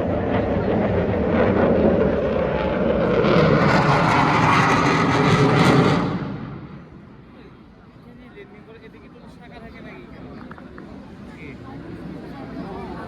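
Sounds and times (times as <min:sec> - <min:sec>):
airplane passing overhead: 0:00.0 - 0:07.8.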